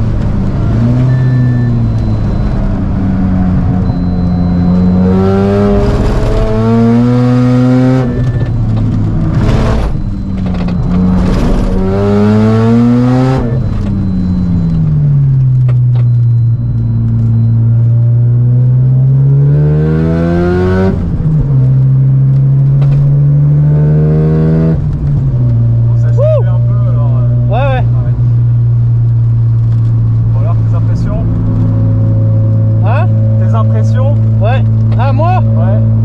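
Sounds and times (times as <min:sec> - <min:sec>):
rotary engine revving: 0:00.6 - 0:14.4.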